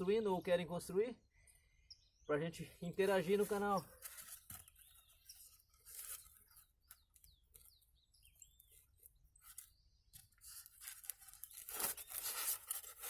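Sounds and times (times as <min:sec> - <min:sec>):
bird chirps: 0:00.0 - 0:10.7
styrofoam rubbing rustle: 0:09.3 - 0:13.0.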